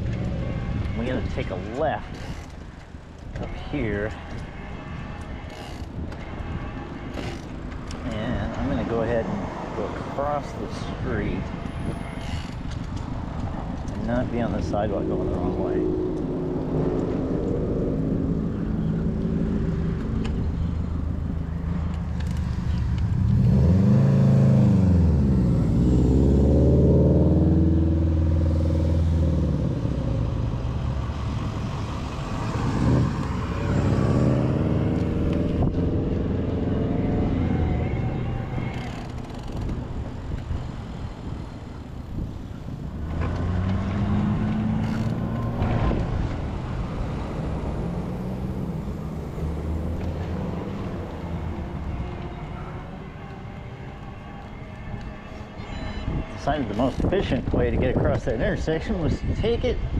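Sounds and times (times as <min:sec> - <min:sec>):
vehicles passing close by: 0:00.0 - 0:59.9.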